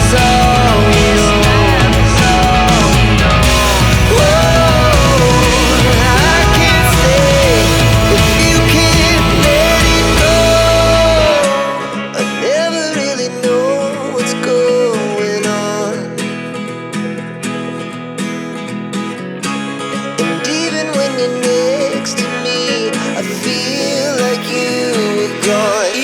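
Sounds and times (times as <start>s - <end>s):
bass: 0.0s - 11.7s
person singing: 0.0s - 16.2s, 20.2s - 26.0s
acoustic guitar: 0.0s - 26.0s.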